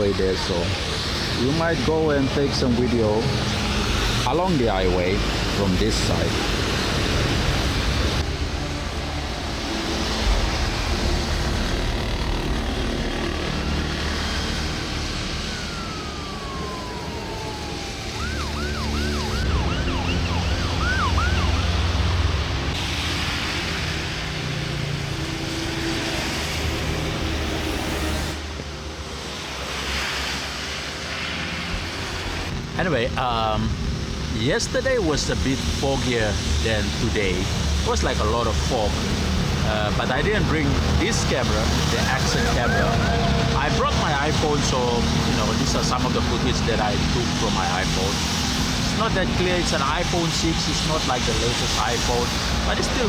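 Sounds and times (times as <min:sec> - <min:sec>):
highway traffic noise: 0:00.0 - 0:53.0
siren wailing and yelping: 0:14.2 - 0:22.8, 0:40.1 - 0:47.1
heavy low rumble: 0:19.2 - 0:53.0.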